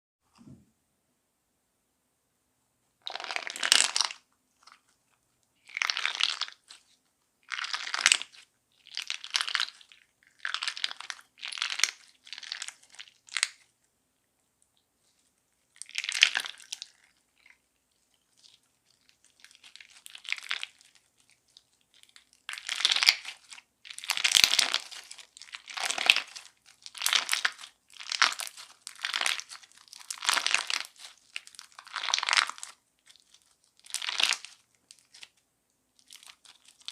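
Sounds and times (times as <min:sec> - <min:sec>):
slime crunching when squeezed: 0:03.0 - 0:04.8, 0:05.6 - 0:06.8, 0:07.4 - 0:13.6, 0:15.8 - 0:17.6, 0:18.3 - 0:21.4, 0:22.0 - 0:35.3.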